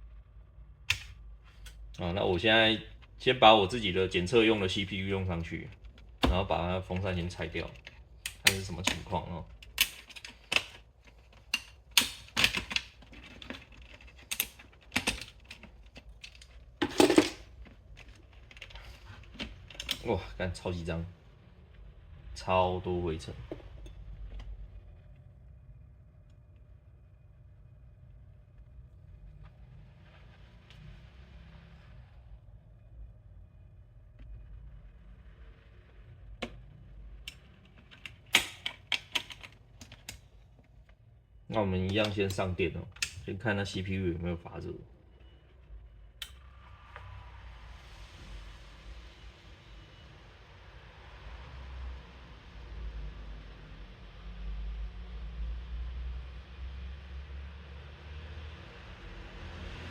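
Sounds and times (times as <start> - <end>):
low steady hum: 0.0 - 59.8
plastic and metal clicks: 5.9 - 20.1, 37.3 - 40.2.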